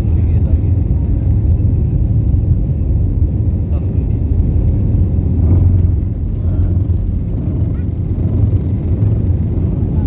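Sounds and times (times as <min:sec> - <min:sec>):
airliner engine drone: 0:00.0 - 0:10.0.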